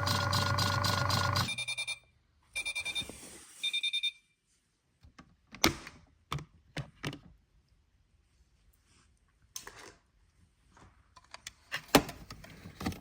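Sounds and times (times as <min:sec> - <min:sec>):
washing machine high beeps: 0:00.0 - 0:04.4.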